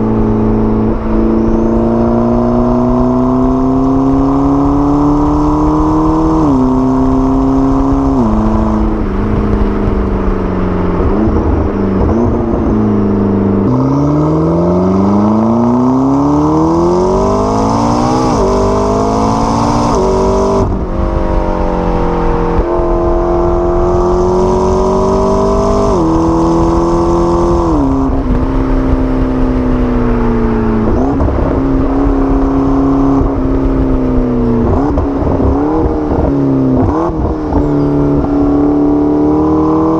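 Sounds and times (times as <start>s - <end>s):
sports car engine accelerating: 0.0s - 39.9s.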